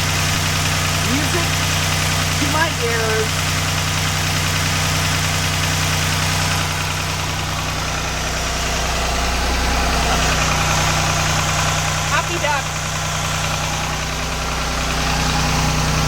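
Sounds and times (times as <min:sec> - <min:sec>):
marine engine idling: 0:00.0 - 0:16.0.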